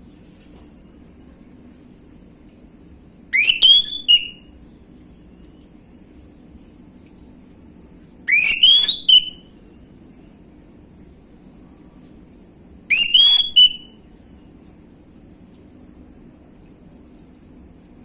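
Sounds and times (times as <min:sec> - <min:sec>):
thrush whistled call: 0:03.4 - 0:04.4, 0:08.3 - 0:09.4, 0:12.9 - 0:13.9.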